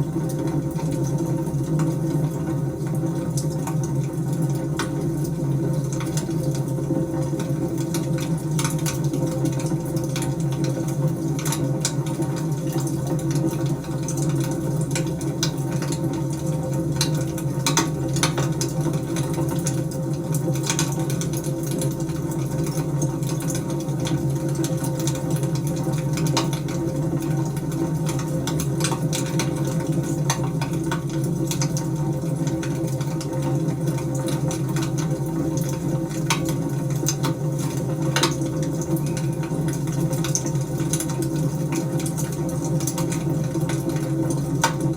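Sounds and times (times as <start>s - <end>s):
wood fire crackling and popping: 35.6s - 39.4s.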